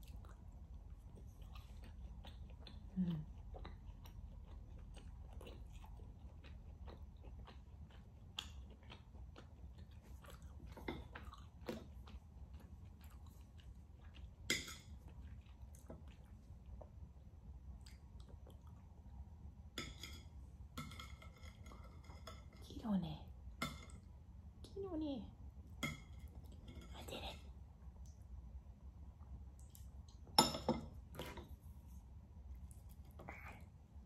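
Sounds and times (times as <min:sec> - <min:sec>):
person chewing with wet smacks: 0:00.0 - 0:19.5, 0:29.2 - 0:34.0.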